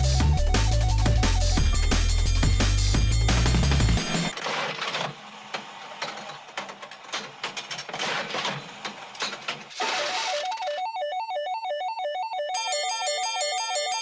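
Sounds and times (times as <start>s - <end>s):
music: 0.0s - 4.3s.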